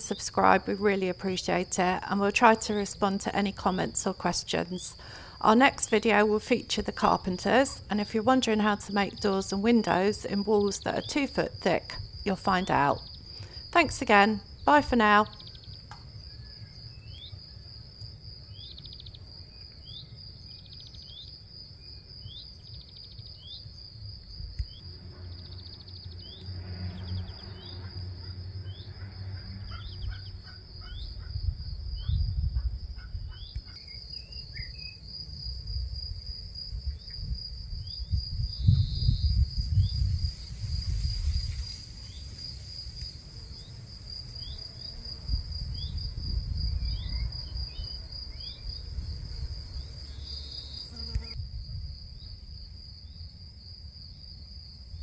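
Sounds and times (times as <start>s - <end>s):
insects trilling: 0.0s - 55.0s
short insect chirps: 11.9s - 32.4s, 33.3s - 35.0s.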